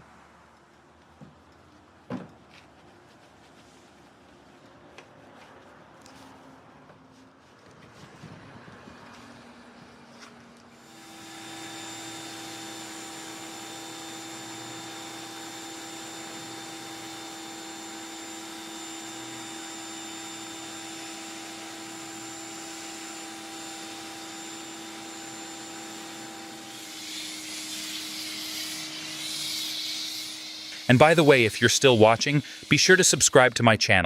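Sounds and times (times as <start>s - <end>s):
electric motor whine: 10.8s - 33.4s
loud hissing spray: 27.0s - 33.5s.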